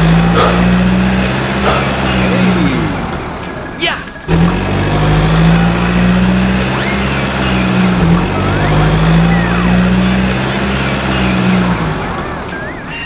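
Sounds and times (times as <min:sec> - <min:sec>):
truck engine drone: 0:00.0 - 0:13.0
gliding whistle-like tones: 0:06.6 - 0:10.2, 0:12.2 - 0:13.0.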